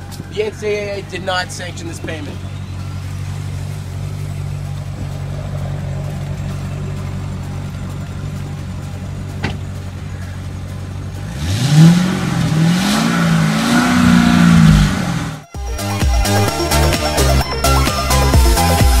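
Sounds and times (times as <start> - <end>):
car engine idling and revving: 0.0 - 19.0
car door shutting: 9.3 - 9.8.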